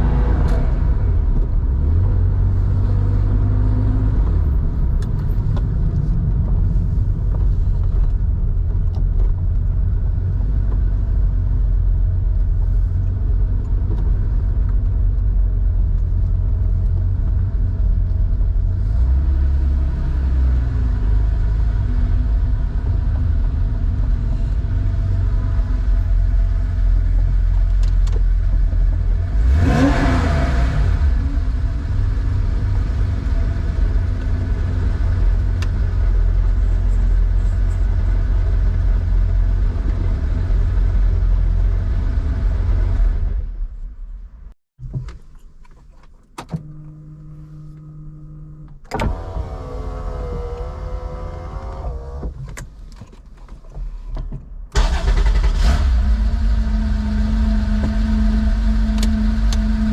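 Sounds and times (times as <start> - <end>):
engine revving: 29.2 - 31.3, 54.8 - 59.9
deep exhaust drone: 46.7 - 52.3.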